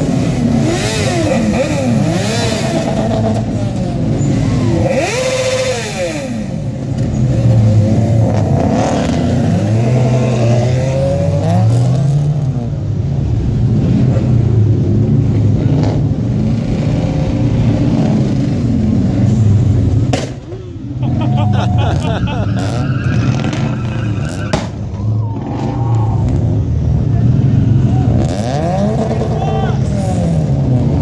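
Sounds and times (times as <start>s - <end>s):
drone of idling engines: 0.0s - 11.8s
cars revving and accelerating past: 0.0s - 31.0s.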